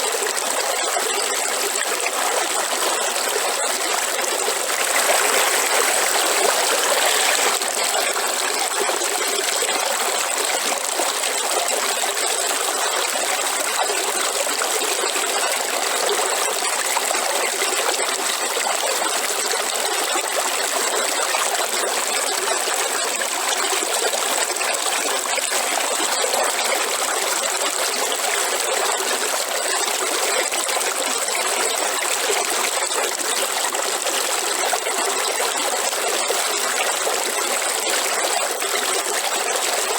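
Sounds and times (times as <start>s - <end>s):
waterfall rushing: 4.8s - 7.7s.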